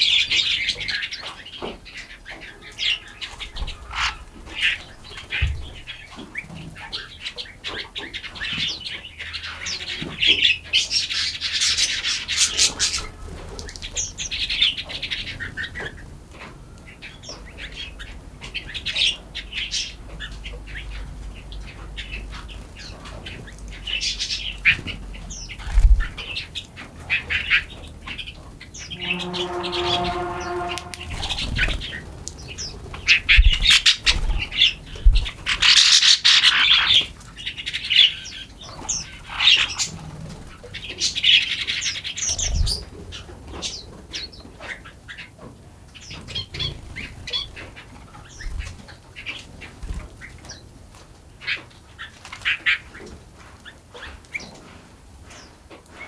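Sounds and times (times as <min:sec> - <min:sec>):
songbirds chirping and singing: 0:00.0 - 0:54.7
harsh nasal bird call: 0:28.7 - 0:31.8
low thumps: 0:28.8 - 0:31.7.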